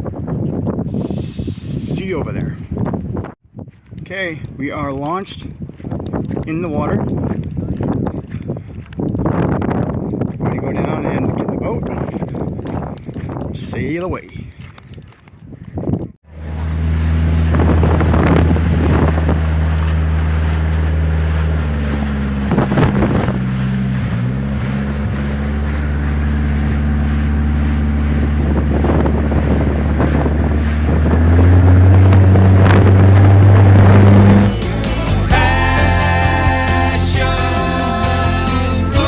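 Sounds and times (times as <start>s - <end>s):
wind buffeting microphone: 0.0s - 34.7s
motorboat engine running: 16.2s - 39.0s.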